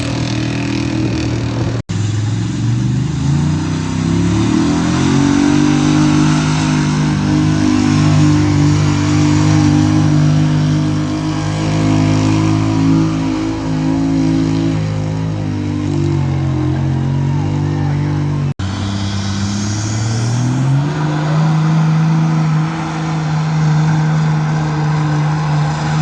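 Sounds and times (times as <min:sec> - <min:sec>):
pulling vehicle engine at high revs: 0:00.0 - 0:26.0.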